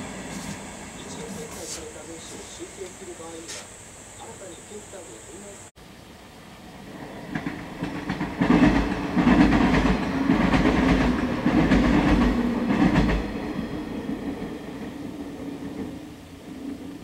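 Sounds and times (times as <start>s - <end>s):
train wheels clattering over rail joints: 7.3s - 13.4s.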